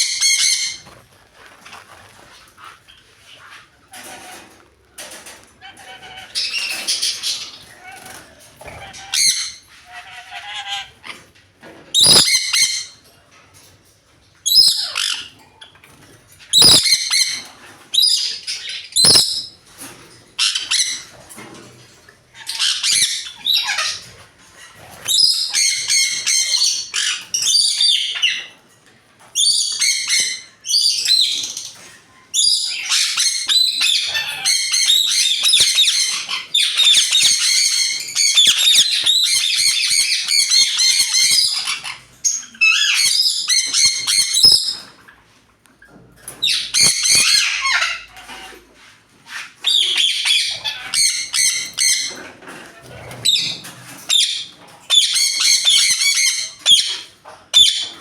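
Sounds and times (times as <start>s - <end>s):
birds squawking: 0.0s - 1.0s, 5.6s - 11.2s, 12.0s - 13.0s, 16.6s - 19.6s, 32.4s - 45.0s, 46.4s - 48.4s, 49.6s - 52.2s.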